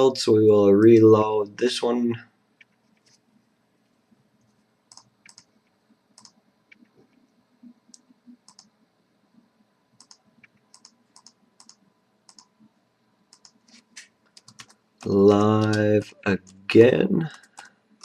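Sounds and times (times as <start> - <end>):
computer mouse and keyboard clicks: 4.9 - 5.5, 6.2 - 7.2, 7.9 - 8.7, 10.0 - 12.5, 13.3 - 16.6, 17.3 - 17.8.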